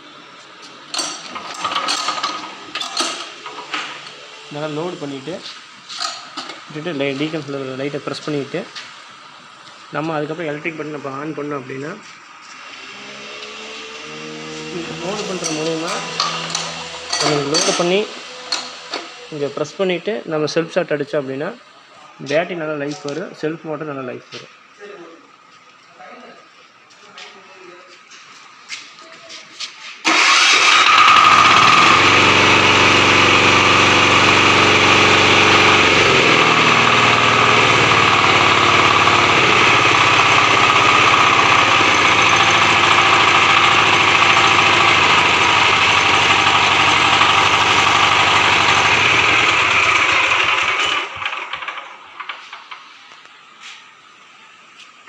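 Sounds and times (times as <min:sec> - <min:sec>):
electric starter cranking: 0:01.0 - 0:05.3, 0:12.7 - 0:19.7, 0:30.0 - 0:52.9
diesel engine running: 0:12.7 - 0:19.6, 0:30.1 - 0:52.0.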